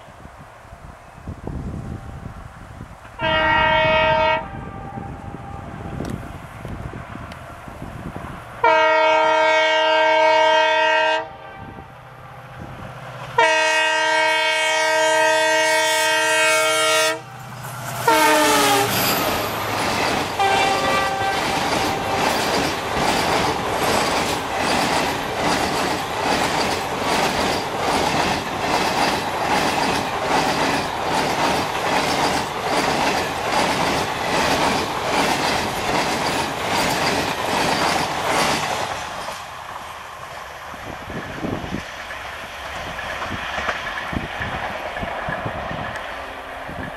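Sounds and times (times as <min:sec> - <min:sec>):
train air horn blasts: 0:03.1 - 0:05.9, 0:08.6 - 0:12.0, 0:13.3 - 0:19.6, 0:20.4 - 0:22.5
wheels clickety-clack: 0:19.0 - 0:39.5, 0:41.1 - 0:46.9.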